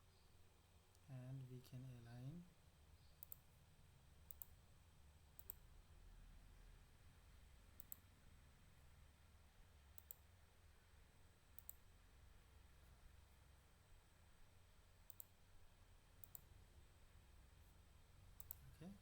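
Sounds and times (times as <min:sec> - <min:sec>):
low background hum: 0:00.0 - 0:19.0
computer mouse clicks: 0:03.1 - 0:03.5, 0:04.2 - 0:04.6, 0:05.4 - 0:05.6, 0:07.8 - 0:08.1, 0:09.9 - 0:10.3, 0:11.5 - 0:11.9, 0:15.0 - 0:15.4, 0:16.2 - 0:16.5, 0:18.4 - 0:18.7.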